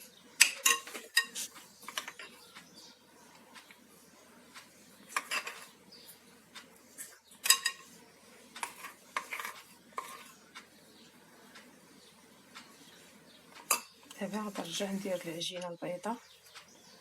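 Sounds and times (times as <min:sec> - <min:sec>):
utensil clinking against a bowl: 0:00.4 - 0:02.4, 0:05.1 - 0:05.7, 0:07.4 - 0:07.9.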